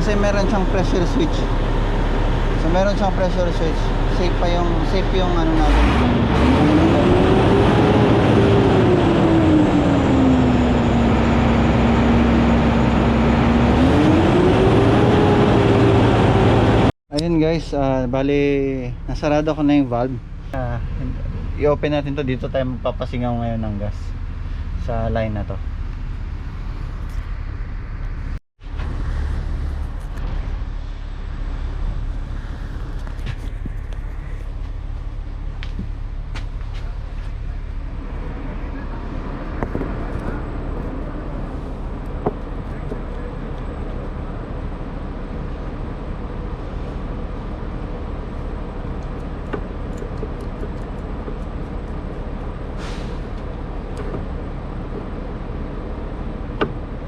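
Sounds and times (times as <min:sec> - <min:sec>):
bus engine running with whine: 0:00.0 - 0:17.0, 0:18.0 - 0:57.0
steady low rumble: 0:16.6 - 0:57.0
gas hissing from a line: 0:52.7 - 0:53.3.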